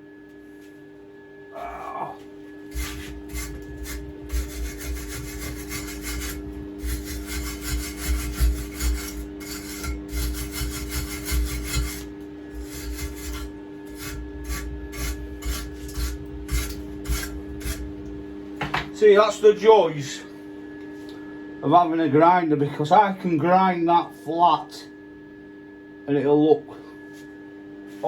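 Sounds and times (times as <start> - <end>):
steady low hum: 0.0 - 28.0
welding arc crackling and hissing: 2.8 - 18.1.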